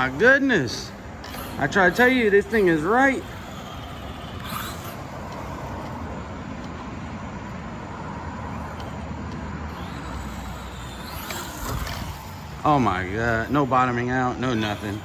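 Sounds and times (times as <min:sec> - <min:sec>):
toy car running noise: 0:00.0 - 0:06.4, 0:08.5 - 0:15.0
faint motor whine: 0:00.0 - 0:15.0.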